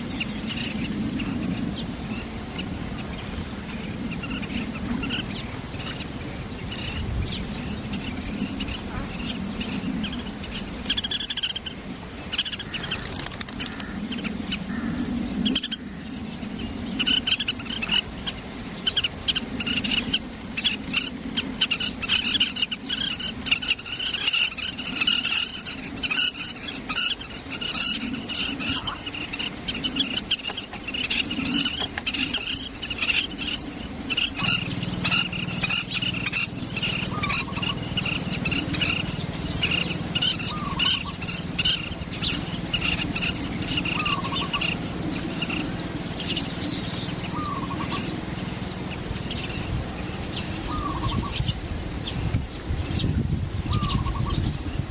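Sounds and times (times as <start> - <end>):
small birds chirping: 0.0 - 54.9
low steady hum: 13.8 - 54.9.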